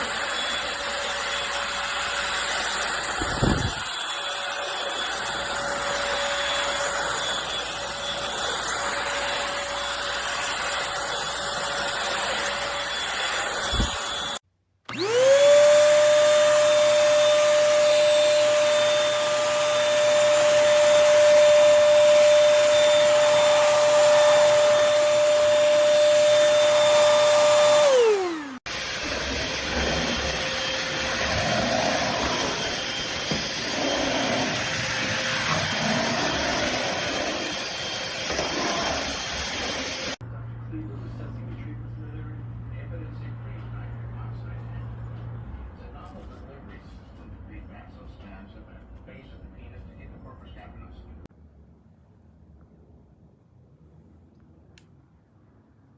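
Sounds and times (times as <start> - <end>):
vacuum cleaner motor whine: 0.0 - 40.2.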